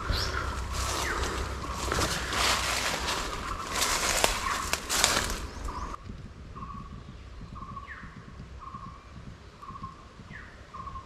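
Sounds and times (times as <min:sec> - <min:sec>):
bird falling calls: 0:00.0 - 0:06.0
loud rush of noise: 0:00.0 - 0:06.0
low wind rumble: 0:00.0 - 0:11.0.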